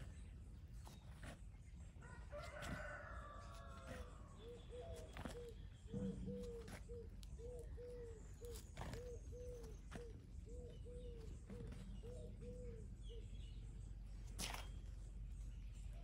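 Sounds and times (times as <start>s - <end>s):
bird cooing hoots: 3.9s - 13.4s.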